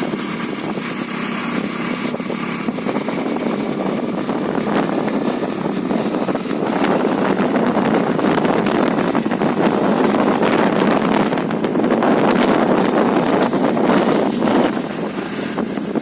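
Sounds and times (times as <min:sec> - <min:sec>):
rushing wind: 0:00.0 - 0:16.0
scooter engine running: 0:00.0 - 0:16.0.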